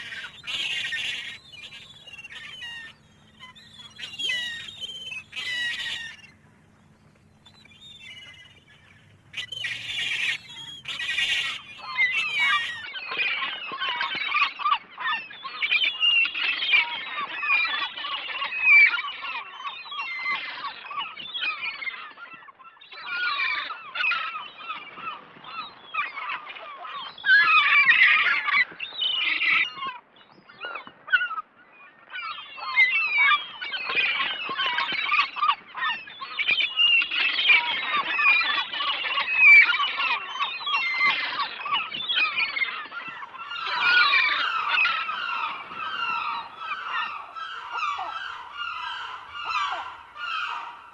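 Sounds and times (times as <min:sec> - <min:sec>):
gulls crying: 0:00.0 - 0:12.8, 0:43.1 - 0:50.9.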